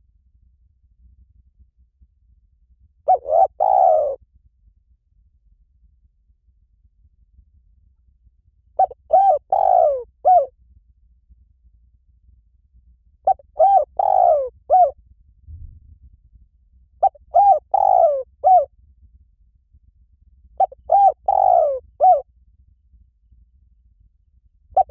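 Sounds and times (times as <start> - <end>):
dove cooing: 3.1 - 4.2, 8.8 - 10.5, 13.3 - 15.0, 17.0 - 18.7, 20.6 - 22.2.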